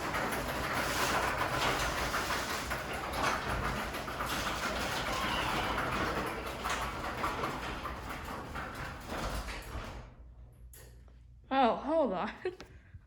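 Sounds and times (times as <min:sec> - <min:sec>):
garage door rollers rattling: 0:00.0 - 0:10.8.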